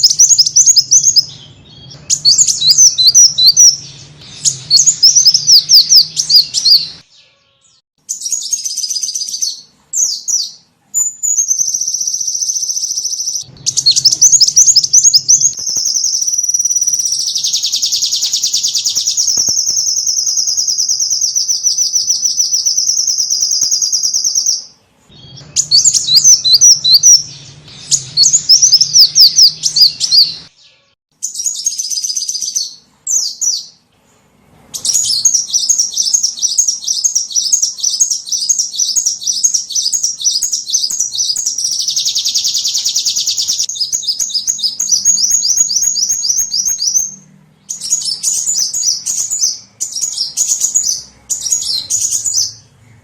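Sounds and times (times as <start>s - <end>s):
songbird chirps and trill: 0.0s - 53.0s.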